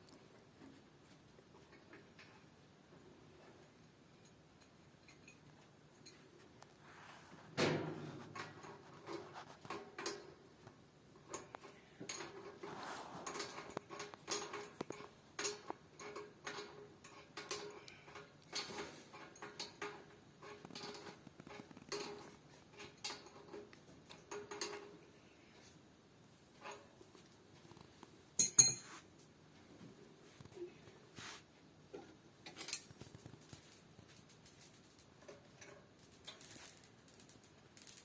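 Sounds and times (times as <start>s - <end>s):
tools clicking on metal parts: 11.2s - 25.0s, 28.4s - 28.8s, 34.2s - 38.0s.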